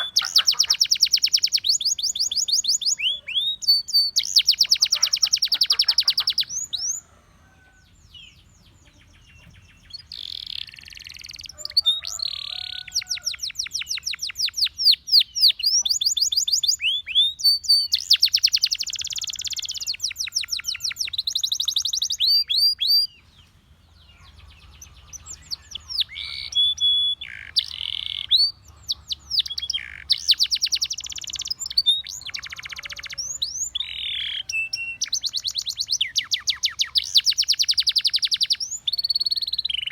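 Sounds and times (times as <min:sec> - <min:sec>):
canary singing trills: 0:00.0 - 0:07.1, 0:07.7 - 0:39.9.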